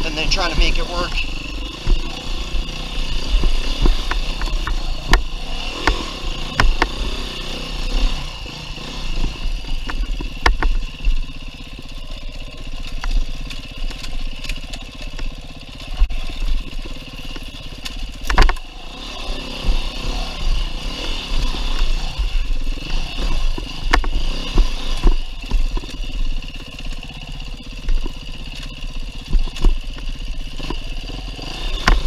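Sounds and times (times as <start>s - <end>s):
sharp knocks and clatter: 0.0s - 7.5s, 9.1s - 11.3s, 16.0s - 18.7s, 21.0s - 26.3s, 27.8s - 32.0s
dirt bike engine revving: 0.0s - 32.0s.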